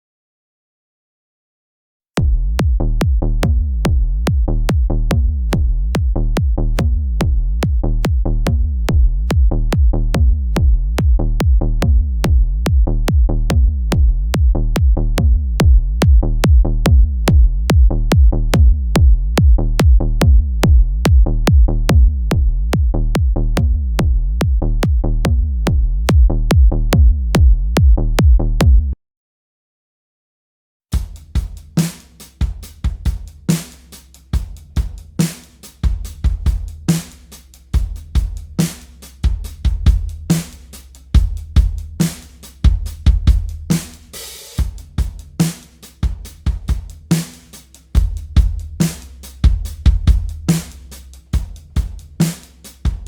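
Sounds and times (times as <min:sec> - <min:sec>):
electronic kick drum booming: 0:02.2 - 0:29.0, 0:31.0 - 0:31.8, 0:32.4 - 0:33.5, 0:34.4 - 0:35.2, 0:35.8 - 0:37.0, 0:37.8 - 0:38.6, 0:39.2 - 0:40.5, 0:41.1 - 0:45.4, 0:46.0 - 0:47.2, 0:48.0 - 0:52.2.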